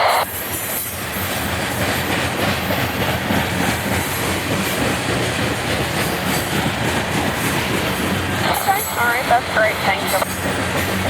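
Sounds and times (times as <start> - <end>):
train wheels rumbling on rails: 0.0 - 11.0
fast clicking of wheels: 1.4 - 8.4.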